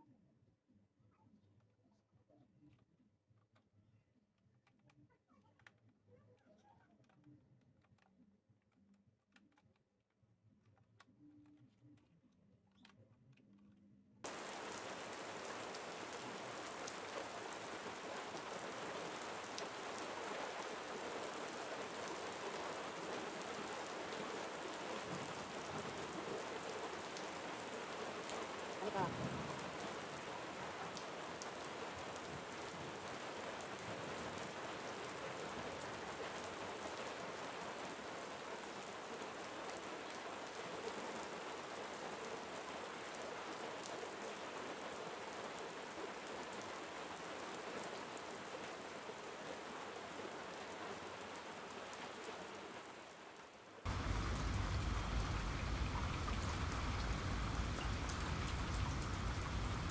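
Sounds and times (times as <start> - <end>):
rain-like hiss: 14.3 - 59.9.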